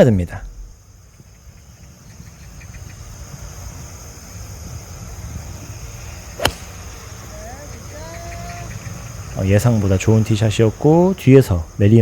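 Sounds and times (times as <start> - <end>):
wind on microphone: 1.2 - 9.4
golf club striking ball: 6.3 - 7.2.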